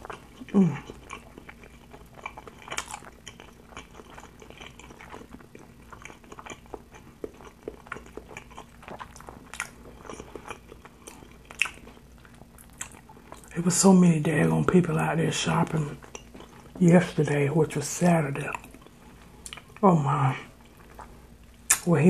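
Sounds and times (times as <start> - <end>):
wet mouth chewing noodles: 0.0 - 13.5, 15.4 - 17.2, 20.5 - 21.9.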